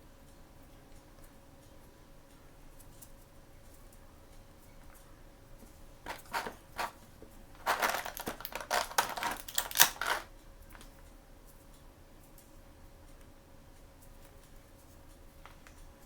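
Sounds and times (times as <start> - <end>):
packaging crinkling: 6.1 - 7.0, 7.6 - 10.3.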